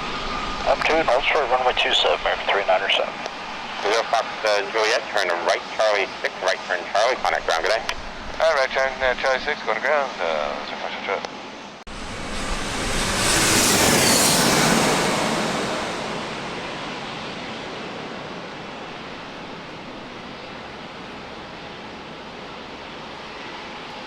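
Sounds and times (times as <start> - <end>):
jet airliner passing: 0.0 - 24.0.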